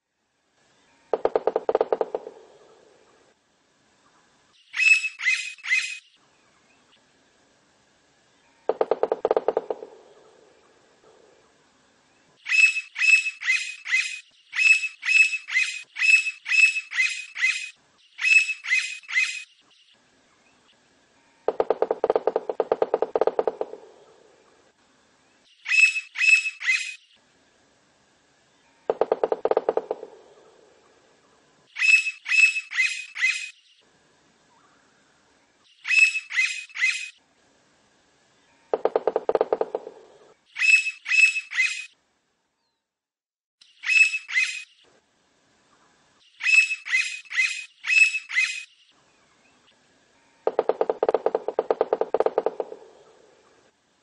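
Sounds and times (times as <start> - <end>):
woodpecker high ringing calls: 1.0 - 3.0, 4.7 - 6.2, 8.5 - 10.3, 12.4 - 19.6, 21.4 - 24.2, 25.6 - 27.2, 28.7 - 30.9, 31.8 - 33.7, 35.8 - 37.2, 38.5 - 42.0, 43.7 - 44.9, 46.3 - 48.9, 50.2 - 53.6
woodpecker rapid rattling: 1.1 - 2.8, 8.7 - 10.3, 21.5 - 24.2, 28.9 - 30.6, 38.7 - 41.9, 50.5 - 53.2.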